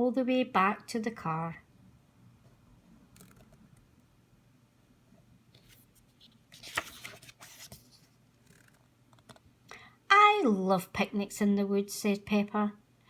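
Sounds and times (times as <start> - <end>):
paper page turning: 5.6 - 9.4.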